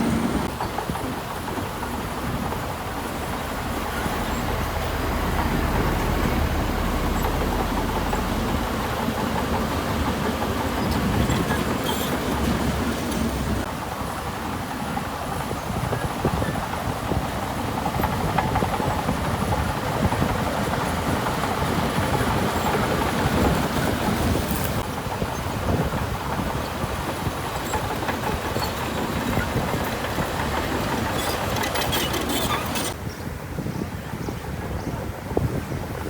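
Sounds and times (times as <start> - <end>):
heavy diesel machinery rumbling: 0.0 - 36.0
dense clattering rattle: 27.5 - 33.0.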